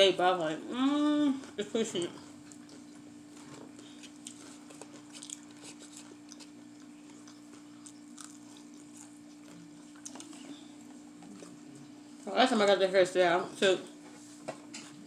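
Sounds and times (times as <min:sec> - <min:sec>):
steady low hum: 0:00.0 - 0:15.0
person chewing and crunching food: 0:01.0 - 0:12.2.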